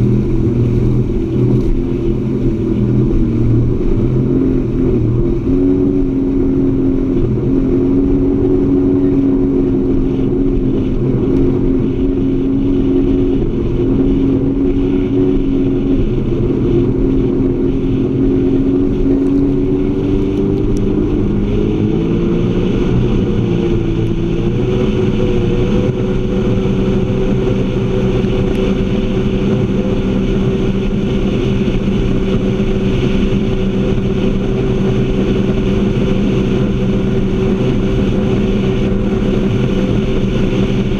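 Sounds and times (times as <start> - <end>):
jet ski engine: 0.0 - 40.9.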